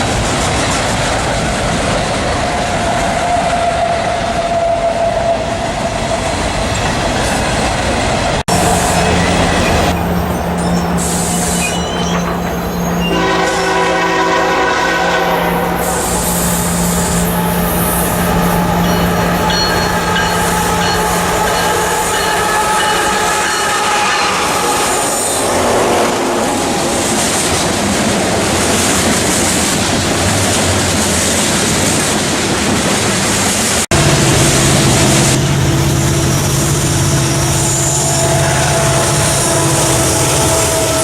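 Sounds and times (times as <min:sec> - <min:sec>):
train wheels on rail: 0:00.0 - 0:41.0
low hum: 0:33.9 - 0:41.0.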